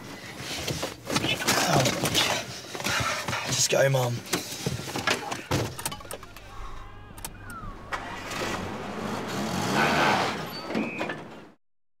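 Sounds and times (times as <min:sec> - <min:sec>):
vehicle engine revving: 0:05.6 - 0:10.7.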